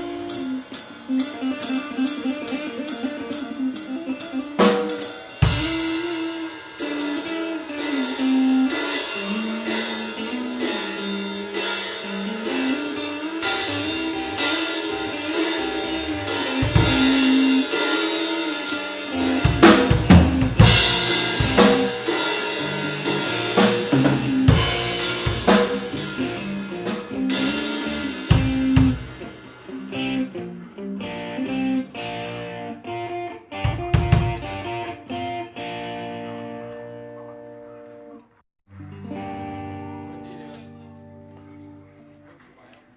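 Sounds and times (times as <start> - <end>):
cymbal strokes: 0.0 - 32.7
electric guitar line: 0.0 - 42.9.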